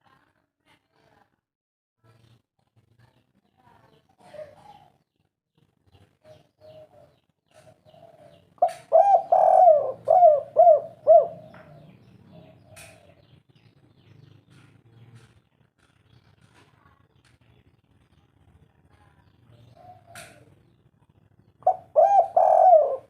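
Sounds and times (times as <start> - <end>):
dove cooing: 6.6 - 13.3, 19.6 - 20.5, 21.6 - 23.0.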